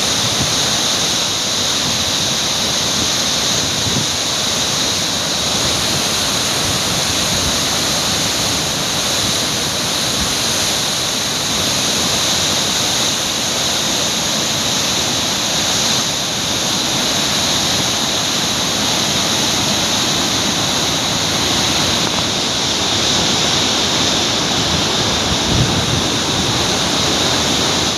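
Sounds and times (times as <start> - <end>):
floodwater roaring through gates: 0.0 - 27.9.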